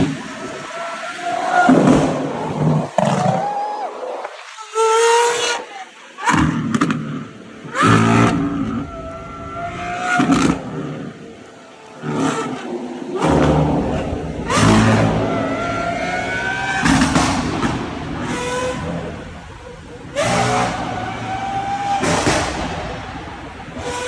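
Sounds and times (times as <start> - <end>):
sports car engines revving: 7.7 - 24.0.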